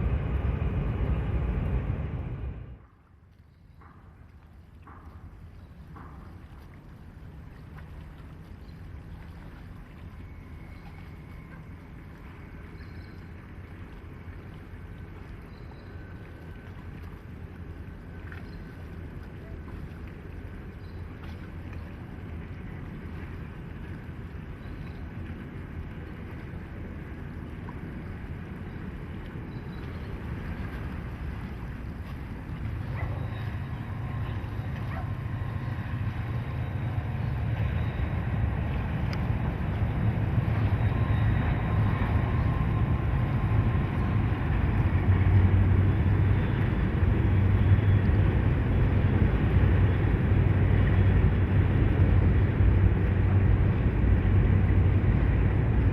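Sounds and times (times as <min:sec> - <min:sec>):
wind on microphone: 0:00.0 - 0:02.8, 0:25.0 - 0:55.9
diesel locomotive engine rumbling: 0:00.0 - 0:02.9, 0:28.5 - 0:55.9.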